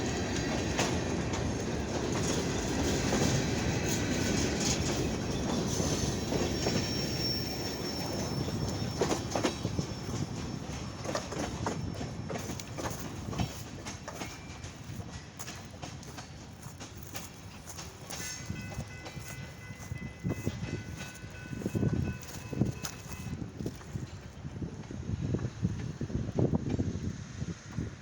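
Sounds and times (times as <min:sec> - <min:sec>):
train wheels clicking over rail joints: 0:00.0 - 0:28.0
thin wheel squeal: 0:05.6 - 0:10.6.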